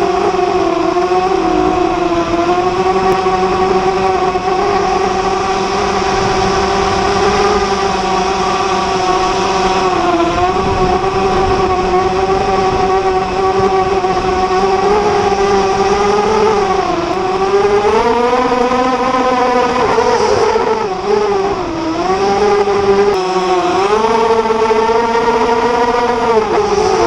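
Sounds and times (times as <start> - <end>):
quadcopter propellers whining: 0.0 - 27.0.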